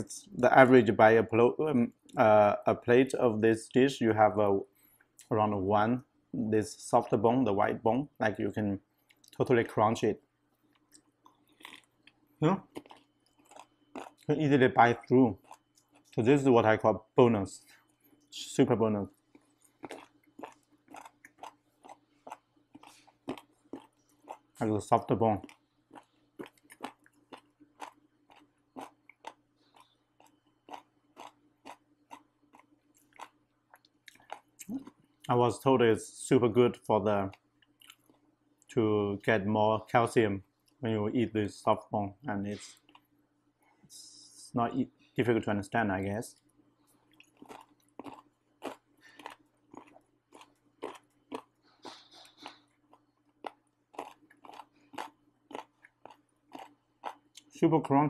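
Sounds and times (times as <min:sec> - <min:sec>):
person chewing crunchy bone: 0:10.6 - 0:16.2, 0:19.0 - 0:35.3, 0:37.3 - 0:38.3, 0:46.9 - 0:57.5.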